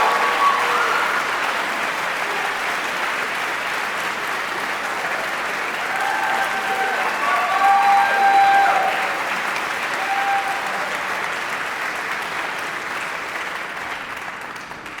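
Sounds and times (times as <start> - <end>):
whistle or cheer: 0.0 - 1.4, 6.0 - 9.0, 10.0 - 10.9
audience applauding: 0.0 - 15.0.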